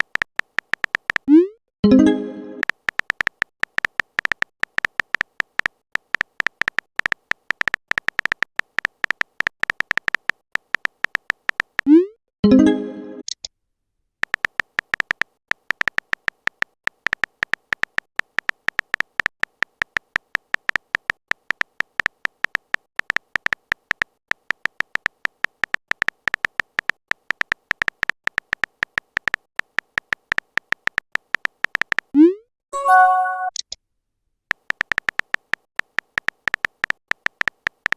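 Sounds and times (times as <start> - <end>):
high-pitched typing beeps: 30.0 - 33.6.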